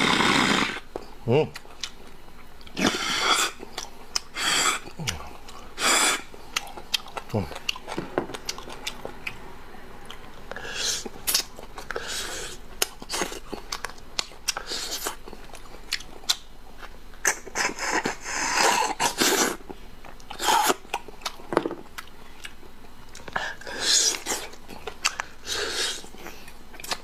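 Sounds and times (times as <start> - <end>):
slurping and sucking: 0.0 - 0.9, 2.8 - 3.6, 4.3 - 6.6, 10.5 - 13.4, 17.2 - 19.6, 23.6 - 24.6, 25.4 - 26.2
wet chewing with mouth clicks: 0.2 - 9.4, 10.0 - 27.0.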